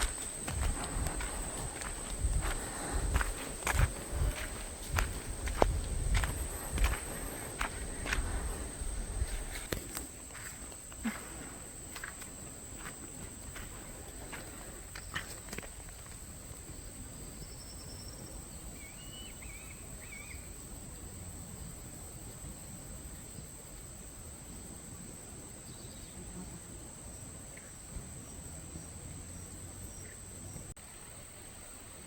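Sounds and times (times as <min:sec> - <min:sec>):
insects droning: 0:00.0 - 0:32.0
bird chirps: 0:18.8 - 0:20.4.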